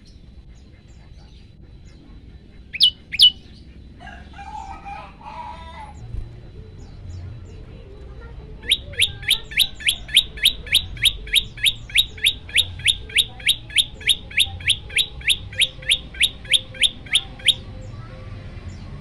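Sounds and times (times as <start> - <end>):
bird giving sharp high chirps: 2.7 - 3.6, 8.6 - 17.7.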